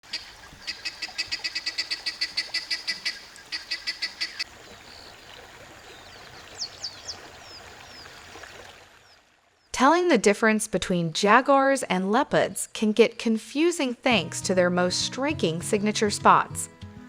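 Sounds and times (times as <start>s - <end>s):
bird sharp repeated calls: 0.1s - 4.5s.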